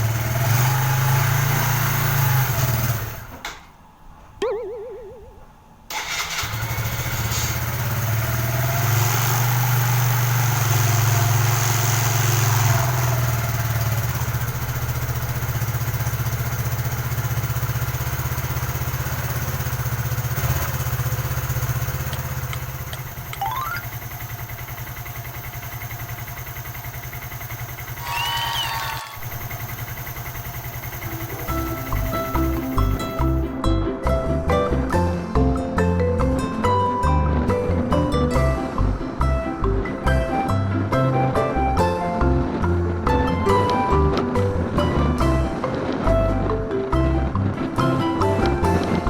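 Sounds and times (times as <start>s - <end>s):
motorcycle engine starting and idling: 0.0s - 3.8s, 5.9s - 33.6s.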